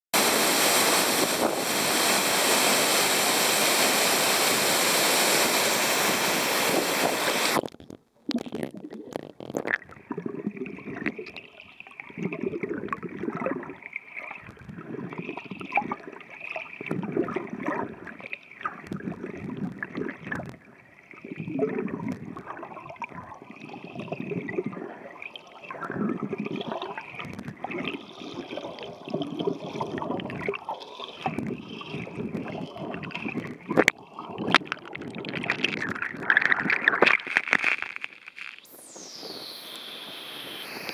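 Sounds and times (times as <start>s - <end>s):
waterfall rushing: 0.2s - 7.6s
muffled underwater churning: 0.2s - 40.9s.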